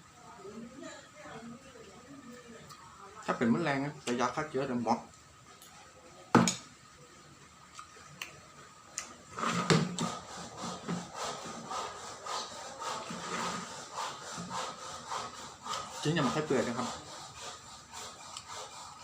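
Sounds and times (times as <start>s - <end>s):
person chewing and tearing food: 7.6s - 9.3s, 18.1s - 19.0s.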